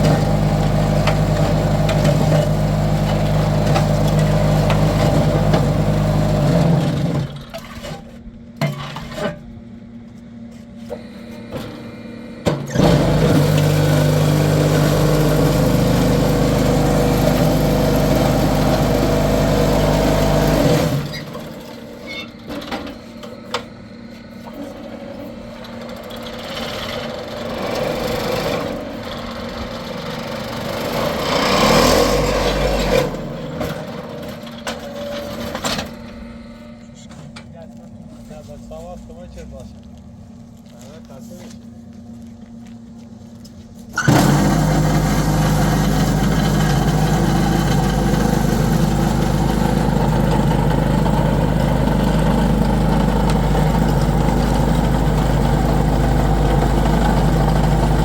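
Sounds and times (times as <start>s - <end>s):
engine running loudly: 0.0s - 7.5s, 12.4s - 22.0s, 26.1s - 34.8s, 43.9s - 58.0s.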